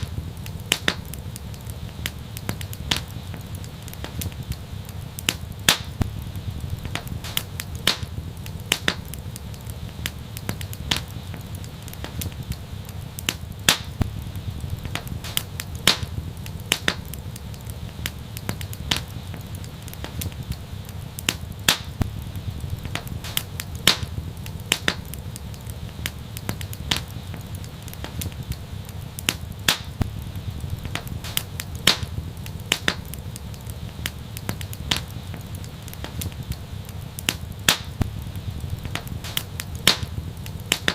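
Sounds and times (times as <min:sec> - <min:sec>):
wood fire crackling and popping: 0:00.0 - 0:40.9
low rumble: 0:06.0 - 0:07.3, 0:14.0 - 0:15.3, 0:22.0 - 0:23.2, 0:30.0 - 0:31.3, 0:38.0 - 0:39.3.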